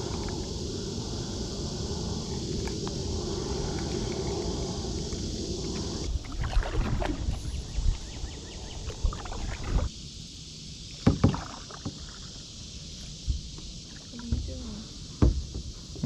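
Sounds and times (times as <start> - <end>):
paddle splashing water: 6.1 - 8.0, 8.8 - 9.9, 10.9 - 12.4
paddle knocking against hull: 11.0 - 12.1.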